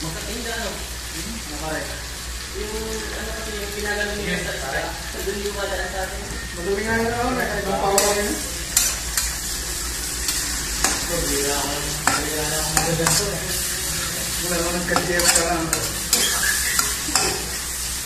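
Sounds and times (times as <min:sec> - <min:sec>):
vegetables sizzling in a wok: 0:00.0 - 0:18.0
metal ladle scraping a pan: 0:07.8 - 0:17.7.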